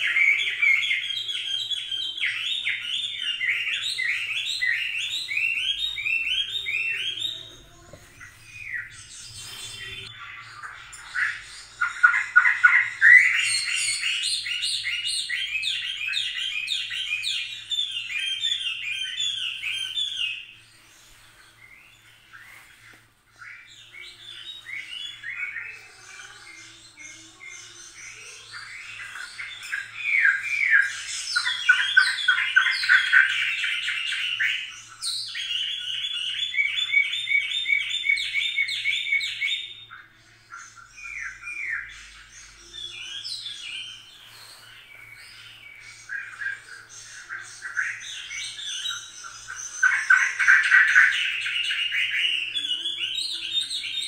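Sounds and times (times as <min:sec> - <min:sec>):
birds chirping and trilling: 0:00.0 - 0:54.0.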